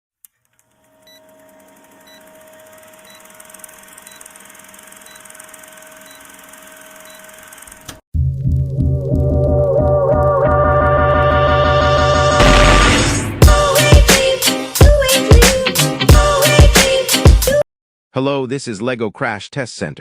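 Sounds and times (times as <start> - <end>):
electronic hum: 0.5 - 8.0
music: 8.2 - 17.6.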